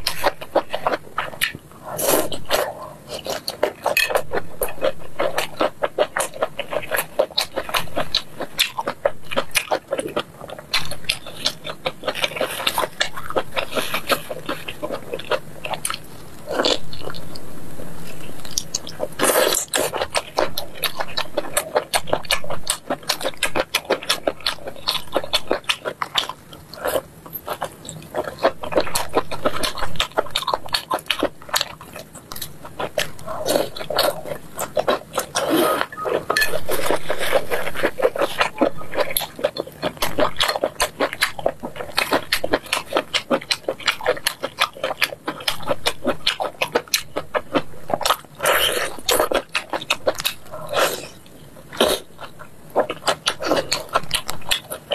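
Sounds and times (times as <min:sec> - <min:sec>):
chewing and mouth smacking: 0:18.1 - 0:54.9.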